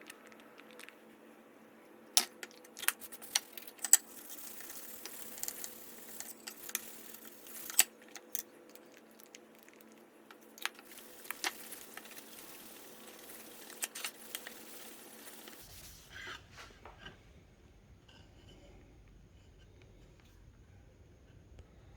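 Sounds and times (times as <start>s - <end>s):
small clicks of objects handled: 0.0s - 1.0s
faint steady hum: 0.0s - 21.9s
objects rubbing and scraping: 2.4s - 17.2s.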